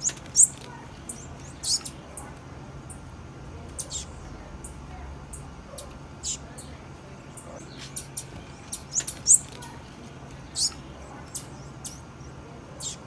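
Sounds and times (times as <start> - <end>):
bird chip calls: 0.0 - 3.0, 3.8 - 13.0.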